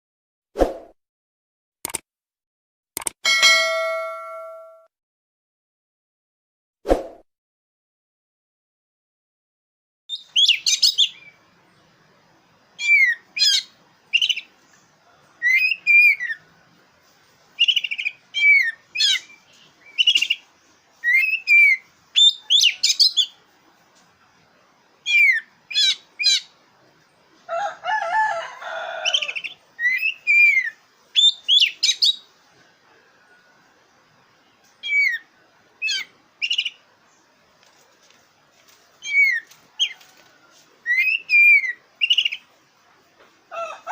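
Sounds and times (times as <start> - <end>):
bird singing whistled phrases: 10.1 - 11.3, 12.8 - 13.6, 15.4 - 16.4, 21.0 - 23.3, 29.3 - 32.2, 34.8 - 35.2, 39.0 - 39.4, 40.9 - 42.4.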